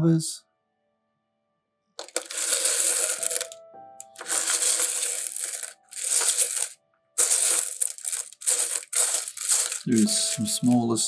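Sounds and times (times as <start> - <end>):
stones clattering and scraping: 2.0 - 10.8.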